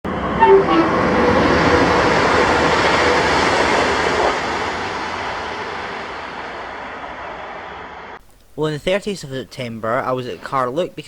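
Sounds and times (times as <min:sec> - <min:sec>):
train passing at speed: 0:00.1 - 0:08.2.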